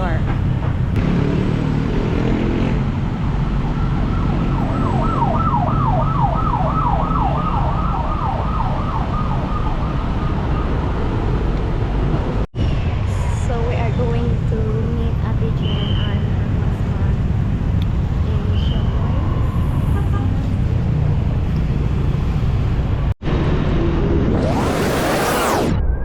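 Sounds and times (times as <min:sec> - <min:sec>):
traffic rumble: 0:00.0 - 0:25.6
emergency vehicle siren: 0:03.1 - 0:12.2.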